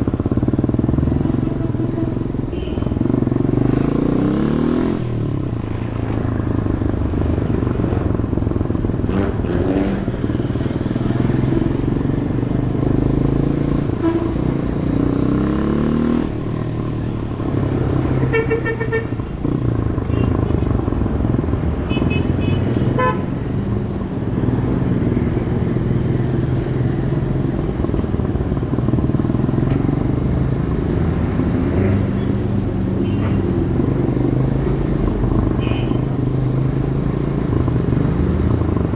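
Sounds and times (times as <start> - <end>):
motorcycle engine: 0.0 - 38.9
vehicle horn: 1.4 - 3.0, 13.9 - 14.6, 18.1 - 19.2, 20.1 - 20.6, 21.9 - 23.3, 35.6 - 36.0.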